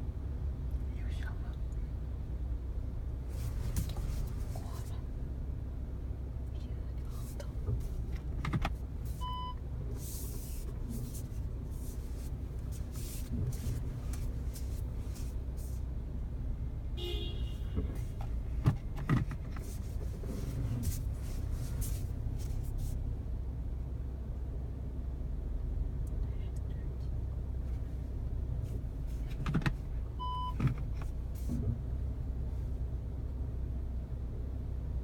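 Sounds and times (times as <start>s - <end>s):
car road and engine rumble: 0.0s - 35.0s
short beep: 9.2s - 9.6s.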